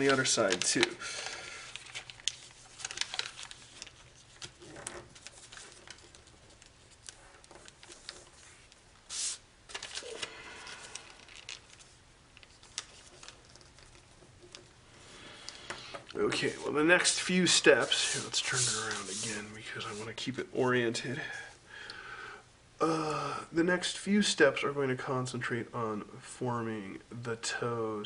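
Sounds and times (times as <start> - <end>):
foil paper crinkling and rustling: 1.6 - 14.2.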